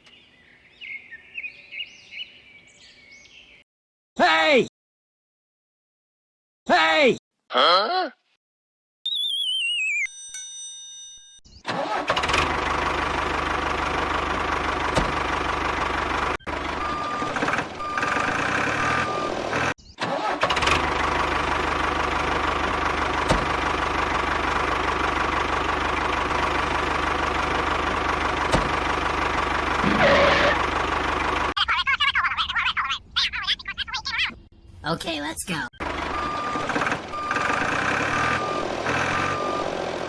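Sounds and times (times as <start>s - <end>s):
tractor engine running: 11.7s - 32.4s, 35.5s - 40.0s.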